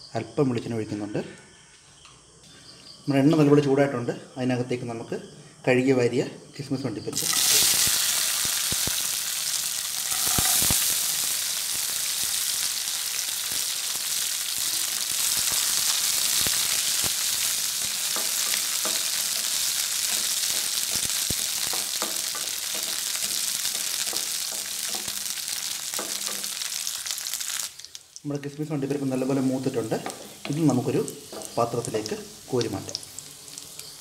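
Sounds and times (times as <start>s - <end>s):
nuts sizzling in oil: 7.1s - 34.0s.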